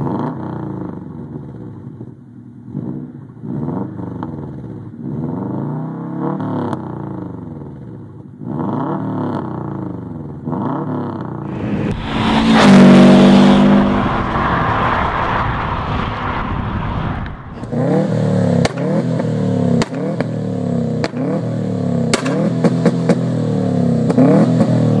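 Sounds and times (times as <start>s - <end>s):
car engine revving: 8.4s - 25.0s
car passing: 11.4s - 19.6s.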